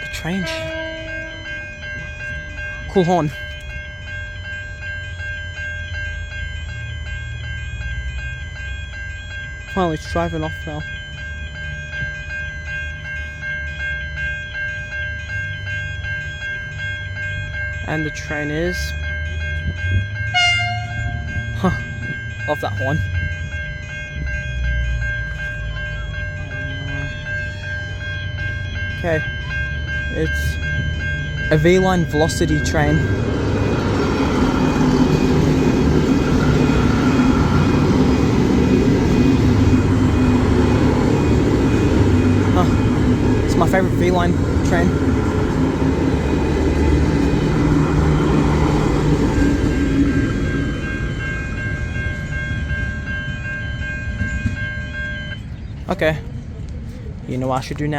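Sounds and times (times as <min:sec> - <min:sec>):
level crossing bells ringing: 0:00.0 - 0:57.9
low rumble of train: 0:00.0 - 0:57.9.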